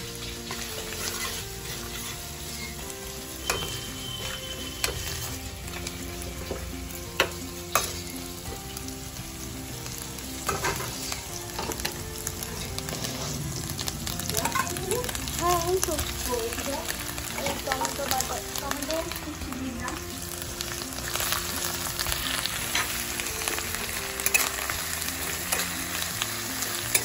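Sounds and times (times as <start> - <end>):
vegetables sizzling in hot oil: 0.0 - 27.0
spatula scraping and knocking pan: 0.4 - 2.8, 10.4 - 13.4.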